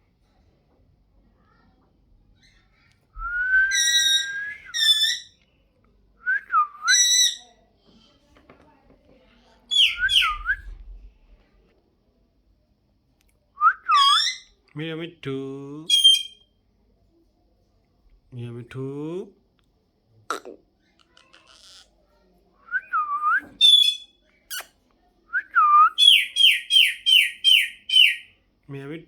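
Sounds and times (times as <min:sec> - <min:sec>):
parrot whistling: 0:03.2 - 0:05.3, 0:06.8 - 0:07.4, 0:09.7 - 0:10.6, 0:13.6 - 0:14.5, 0:15.9 - 0:16.5, 0:22.7 - 0:24.6, 0:25.6 - 0:28.3.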